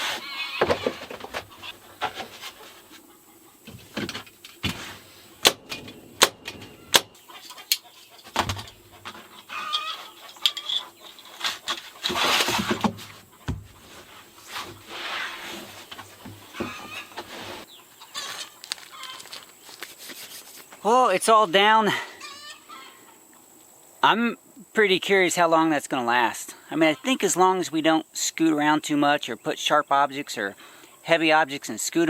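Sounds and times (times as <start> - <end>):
chickens clucking: 0.0 - 19.6, 22.2 - 23.8, 26.6 - 27.5.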